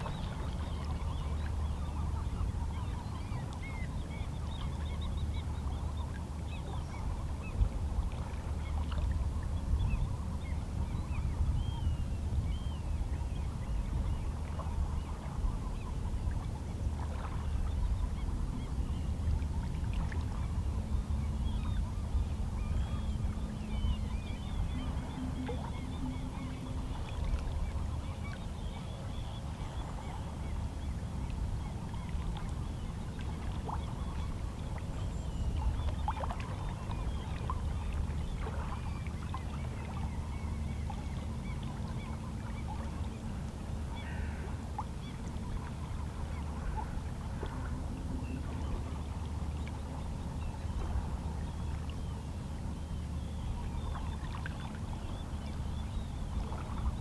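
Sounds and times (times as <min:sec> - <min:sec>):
faint seabird calls: 0:00.0 - 0:57.0.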